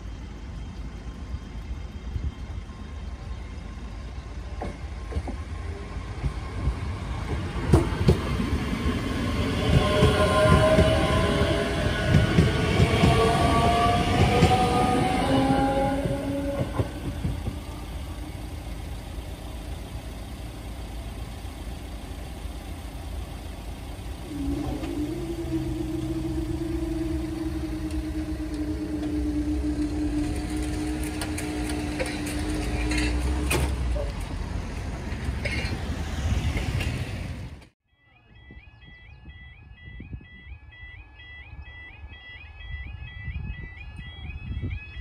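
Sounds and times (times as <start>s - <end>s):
road vehicles moving: 0.0s - 37.8s
train passing: 0.0s - 37.8s
steady engine note: 9.5s - 34.0s.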